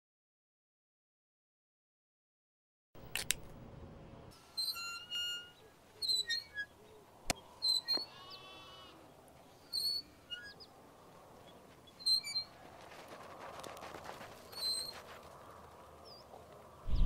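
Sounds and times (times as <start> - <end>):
sharp click: 3.0 - 3.6
small birds chirping: 4.6 - 12.7, 14.2 - 17.0
soft rushing noise: 16.7 - 17.0.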